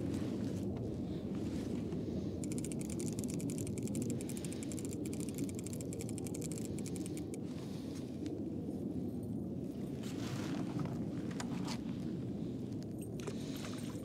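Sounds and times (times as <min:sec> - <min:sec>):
wind and water rumble: 0:00.0 - 0:14.0
fishing reel ratcheting: 0:02.4 - 0:07.4.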